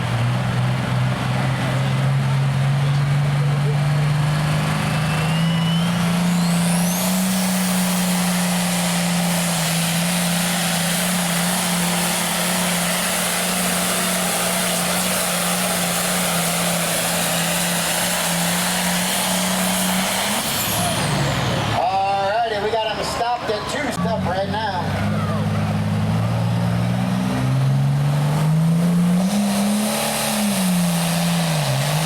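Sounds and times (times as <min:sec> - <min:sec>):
tractor diesel engine at full throttle: 0:00.0 - 0:32.0
high turbo whistle: 0:05.0 - 0:08.5.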